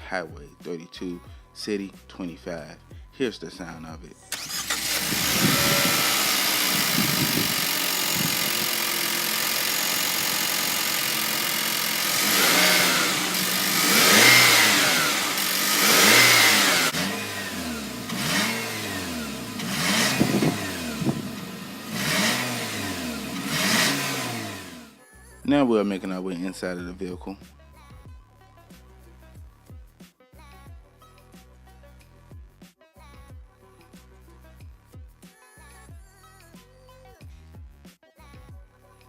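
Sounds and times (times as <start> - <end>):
car engine idling and revving: 4.3 - 25.0.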